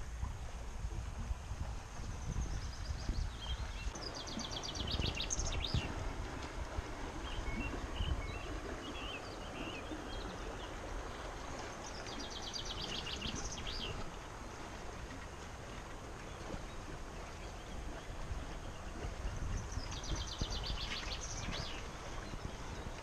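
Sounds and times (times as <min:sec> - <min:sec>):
songbird trilling and chirping: 0:02.8 - 0:05.9.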